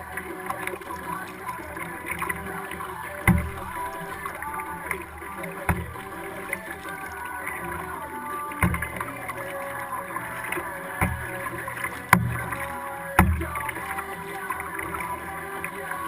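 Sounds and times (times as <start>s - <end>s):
water sloshing against hull: 0.0s - 16.0s
dull knocks on hull: 3.3s - 3.9s, 5.7s - 6.1s, 8.6s - 9.2s, 11.0s - 11.4s, 12.1s - 13.8s.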